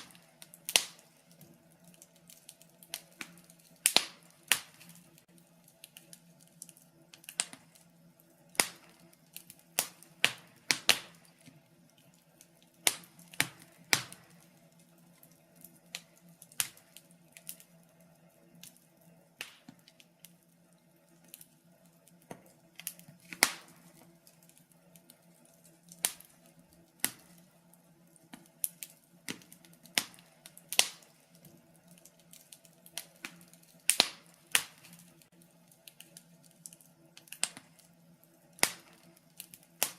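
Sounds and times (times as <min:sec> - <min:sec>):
faint steady hum: 0:00.0 - 0:39.9
wood fire crackling and popping: 0:00.0 - 0:39.9.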